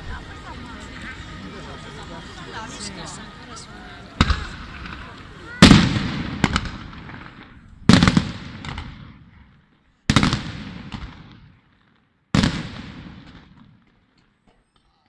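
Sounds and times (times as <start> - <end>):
small firework cracks: 4.1 - 9.4, 10.1 - 14.9
firework shells bursting: 4.2 - 9.1.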